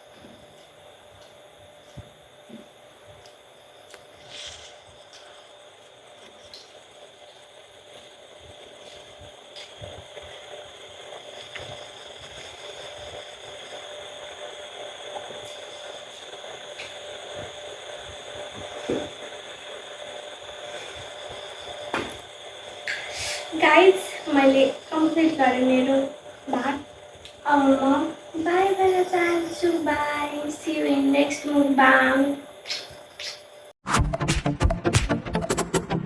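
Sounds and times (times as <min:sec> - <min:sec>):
background hum: 0:00.0 - 0:33.8
faint high whine: 0:00.0 - 0:33.8.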